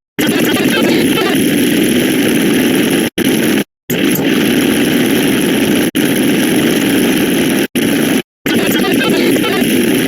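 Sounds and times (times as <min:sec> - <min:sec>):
overlapping sound effects: 0:08.5 - 0:10.0.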